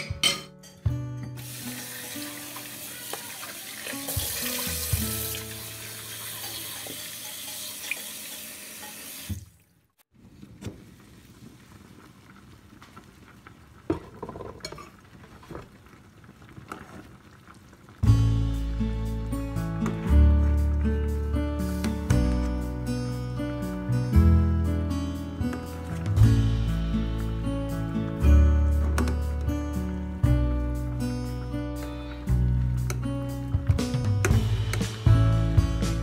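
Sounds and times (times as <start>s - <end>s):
tap water splashing into a pot: 1.4s - 9.7s.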